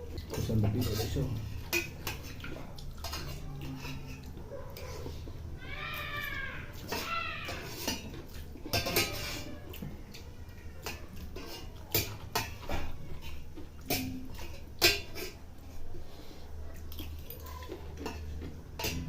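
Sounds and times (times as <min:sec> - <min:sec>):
spoons clinking on dishes: 0:00.2 - 0:04.4, 0:06.7 - 0:15.4, 0:16.9 - 0:19.0.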